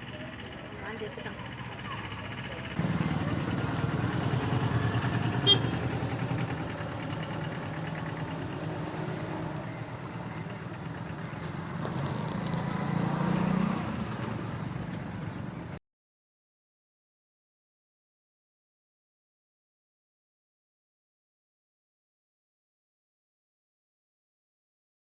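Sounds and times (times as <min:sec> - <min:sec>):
vehicle engine running: 0:00.0 - 0:15.8.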